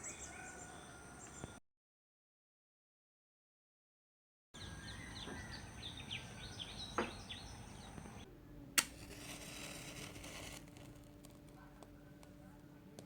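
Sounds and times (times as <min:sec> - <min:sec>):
birds chirping rapidly: 0:00.0 - 0:01.6, 0:04.6 - 0:08.3.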